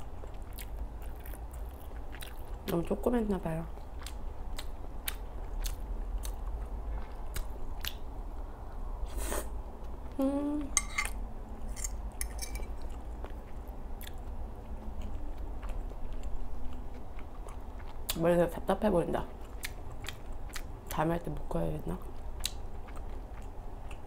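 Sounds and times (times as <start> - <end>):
chewing and lip-smacking: 0.1 - 2.9, 3.7 - 8.1, 12.7 - 18.3, 19.3 - 21.0, 22.0 - 24.0
person humming: 10.2 - 10.8
fork scraping a bowl: 10.8 - 12.9.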